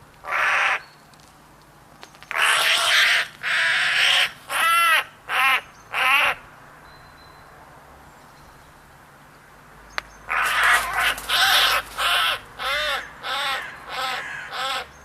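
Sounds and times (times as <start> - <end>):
bird harsh raspy calls: 2.3 - 6.5, 10.2 - 15.0.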